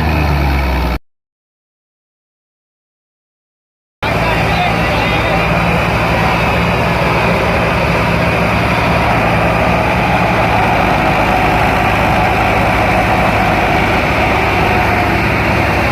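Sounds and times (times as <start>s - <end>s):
tractor diesel engine running: 0.0s - 1.0s, 4.0s - 15.9s.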